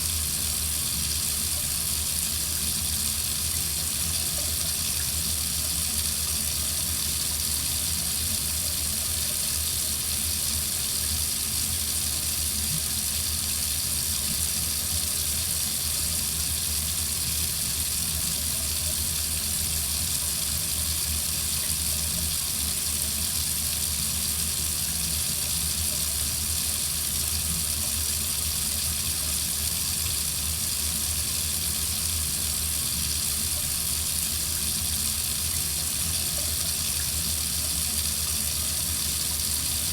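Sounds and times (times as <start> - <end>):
faucet running into a sink: 0.0 - 39.9.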